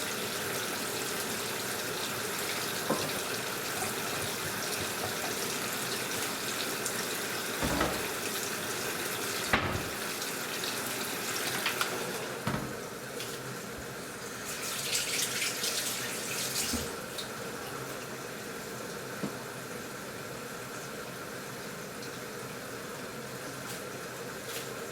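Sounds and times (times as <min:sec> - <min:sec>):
water rushing into washing machine: 0:00.0 - 0:19.9
soft knocks: 0:07.6 - 0:08.2, 0:09.5 - 0:10.0.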